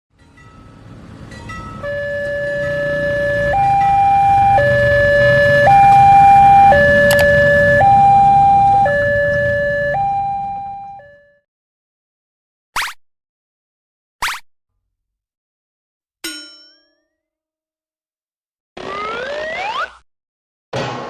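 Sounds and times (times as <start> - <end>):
low vehicle rumble: 0.2 - 11.1
two-tone emergency siren: 1.2 - 11.5, 18.8 - 20.0.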